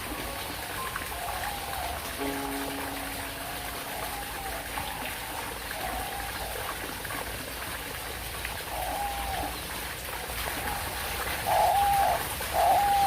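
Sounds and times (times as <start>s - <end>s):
birds calling softly: 11.4s - 13.0s.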